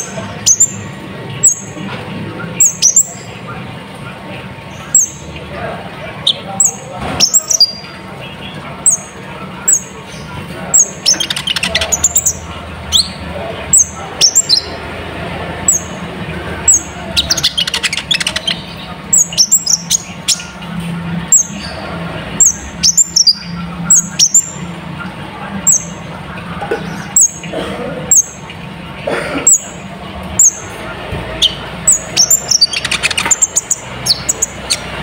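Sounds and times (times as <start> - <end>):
rapid chattering bird trills: 0.0 - 28.7, 29.4 - 35.0
sunbird chirping: 15.6 - 16.1, 31.4 - 35.0.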